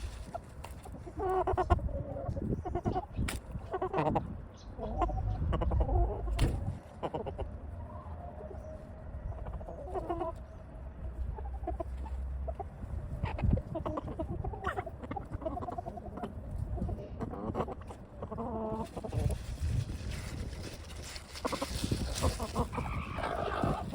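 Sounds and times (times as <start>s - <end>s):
chickens clucking: 0.0s - 23.9s.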